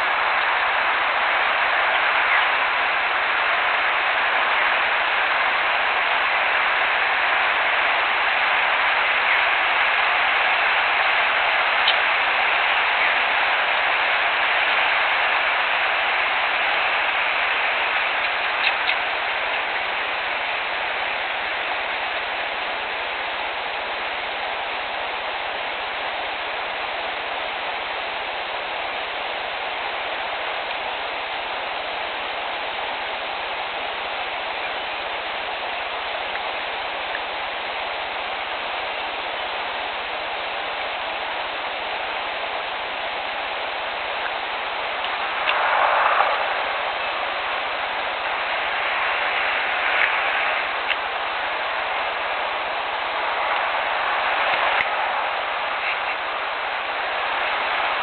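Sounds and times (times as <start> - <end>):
steady outdoor hiss: 0.0 - 58.0
faint clicks: 6.8 - 20.6, 30.6 - 31.0, 44.2 - 47.3, 49.0 - 51.2, 53.0 - 56.3.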